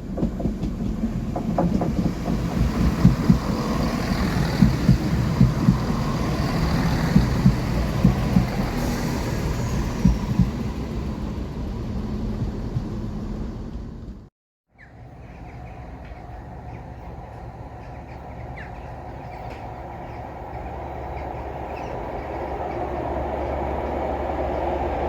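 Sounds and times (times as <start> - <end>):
wheels thumping over rail joints: 0.0 - 11.0
train passing: 0.0 - 14.3, 15.0 - 25.0.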